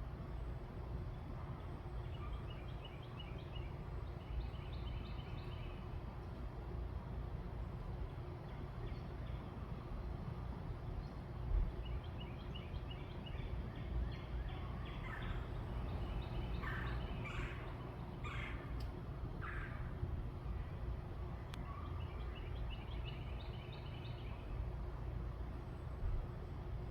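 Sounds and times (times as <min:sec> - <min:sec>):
low outdoor rumble: 0:00.0 - 0:26.9
birds calling: 0:14.2 - 0:19.9.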